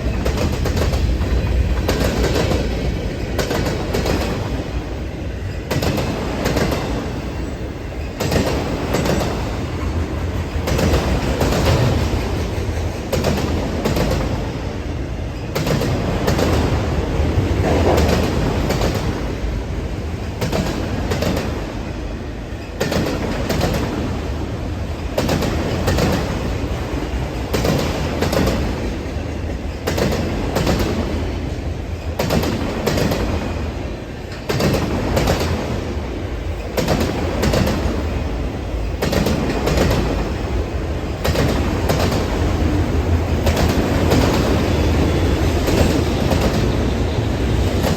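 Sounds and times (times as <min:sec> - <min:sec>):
freight train cars rumbling: 0:00.0 - 0:47.9
wheels clacking on rail joints: 0:25.2 - 0:31.2, 0:36.6 - 0:38.2, 0:38.9 - 0:47.9.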